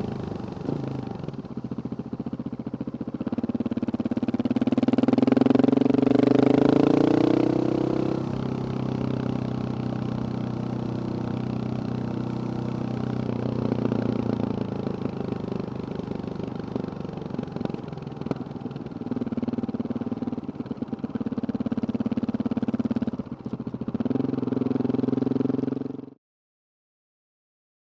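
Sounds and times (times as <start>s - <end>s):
motorcycle engine revving: 0.0s - 26.2s.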